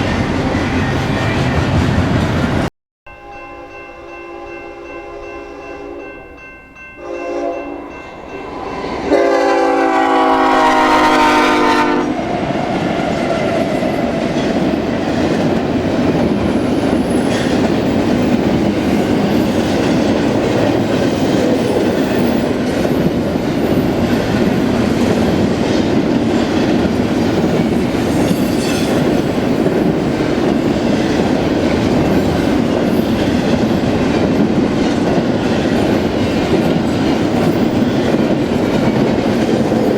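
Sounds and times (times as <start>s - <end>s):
locomotive air horn: 7.0s - 7.8s, 8.8s - 12.2s
train wheels clacking on rails: 12.5s - 39.9s.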